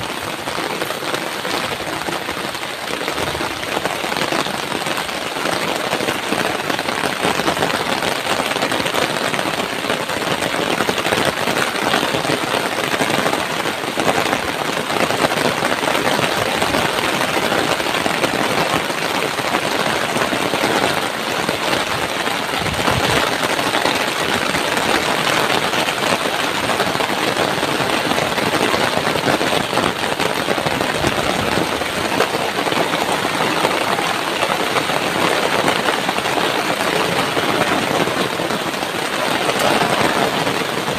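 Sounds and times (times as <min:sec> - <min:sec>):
heavy rain pouring: 0:00.0 - 0:40.9
strong wind: 0:00.0 - 0:40.9.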